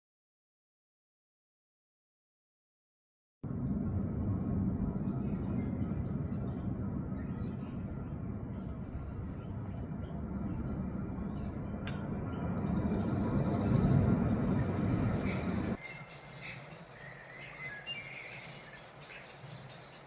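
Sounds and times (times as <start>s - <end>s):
low rumbling background: 3.4s - 20.0s
songbird chirping: 4.2s - 20.0s.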